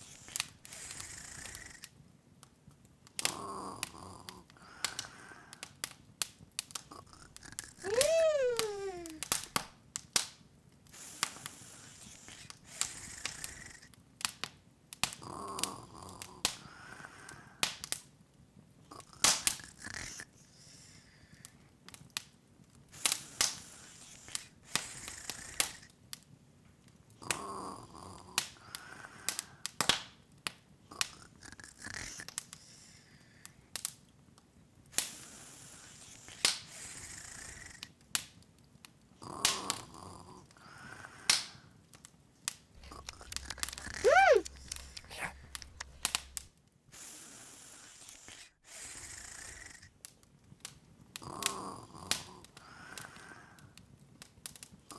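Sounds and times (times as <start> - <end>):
wood fire crackling and popping: 42.8 - 46.5.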